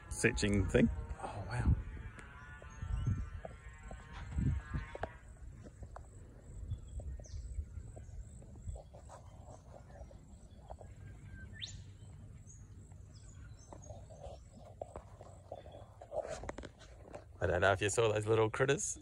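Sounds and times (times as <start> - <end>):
birds whistling calls: 6.6 - 14.7.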